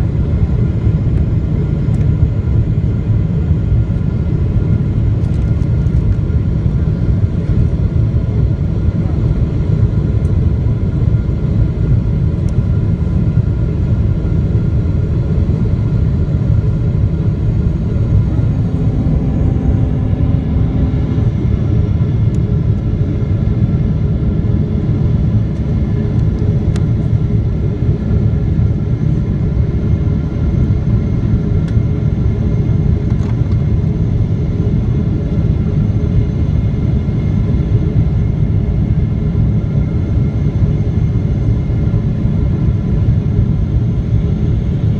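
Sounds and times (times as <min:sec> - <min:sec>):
aircraft cabin engine rumble: 0:00.0 - 0:44.9
faint steady tones: 0:17.7 - 0:22.5.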